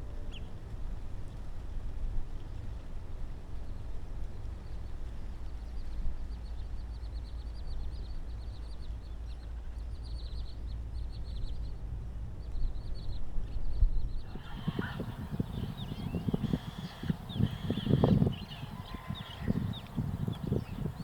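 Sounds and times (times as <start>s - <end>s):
small bird chirping: 14.3s - 21.0s
steady low rumble: 14.3s - 21.0s.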